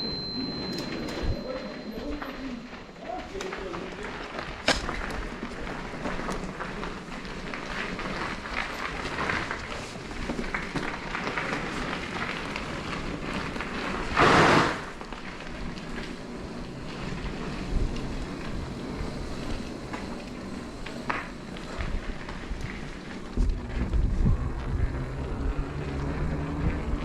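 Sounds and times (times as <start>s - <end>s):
bike tyre and wind noise: 0.0s - 27.0s
loud rush of noise: 16.5s - 27.0s.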